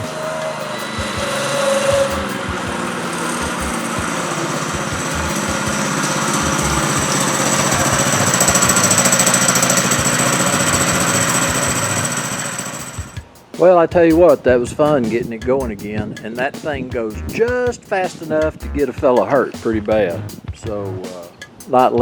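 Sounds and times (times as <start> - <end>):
go-kart engine running: 0.0 - 13.2.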